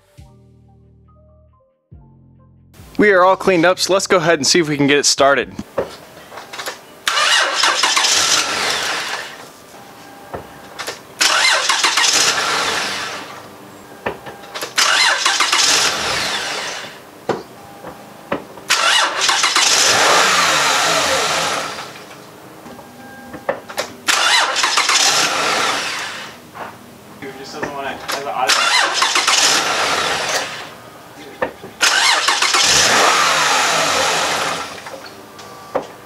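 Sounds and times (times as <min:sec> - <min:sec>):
starter cranking engine: 0:06.6 - 0:09.4, 0:10.8 - 0:13.3, 0:14.6 - 0:17.0, 0:18.7 - 0:22.0, 0:24.0 - 0:26.4, 0:28.1 - 0:30.7, 0:31.8 - 0:35.0.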